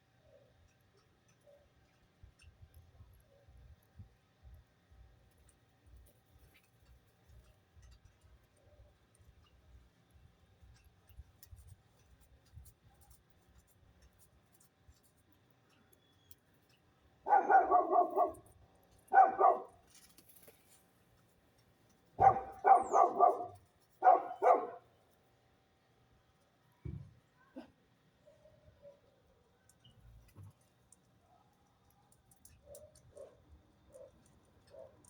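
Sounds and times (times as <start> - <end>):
animal yelping: 22.2 - 24.8.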